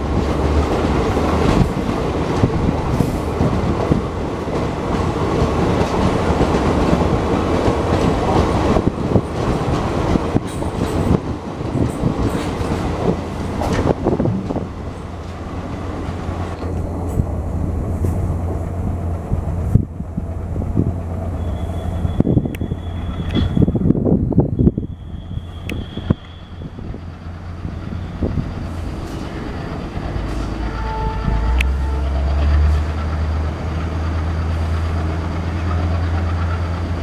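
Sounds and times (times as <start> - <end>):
train wheels clattering on rails: 0.0 - 17.3, 25.6 - 30.8, 31.5 - 37.0.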